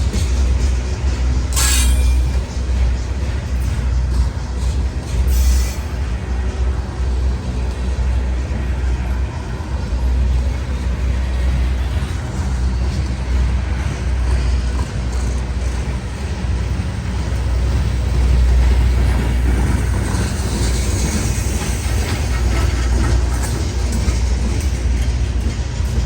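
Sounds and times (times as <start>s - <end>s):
train rumbling past: 0.0s - 26.0s
wheel on rail hiss: 4.7s - 7.2s, 16.6s - 26.0s.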